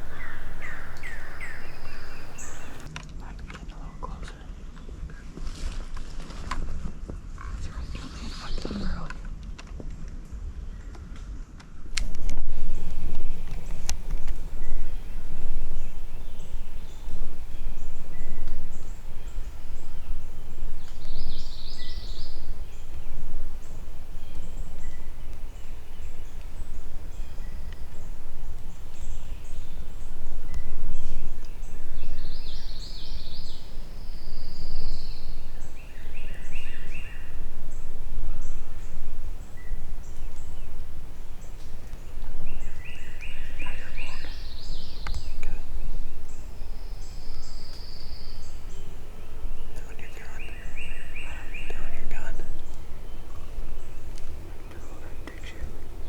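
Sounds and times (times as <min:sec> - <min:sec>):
low rumble: 0:00.0 - 0:02.9, 0:12.0 - 0:47.6
turkey gobbling: 0:00.0 - 0:02.9.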